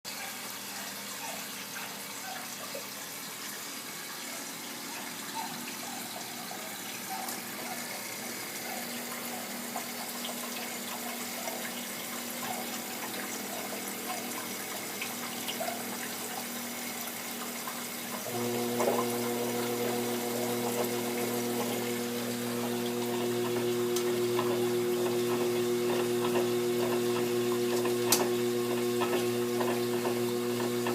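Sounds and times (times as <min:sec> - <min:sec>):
water flowing and trickling: 0:00.1 - 0:30.9
electric motor hum: 0:18.3 - 0:30.9.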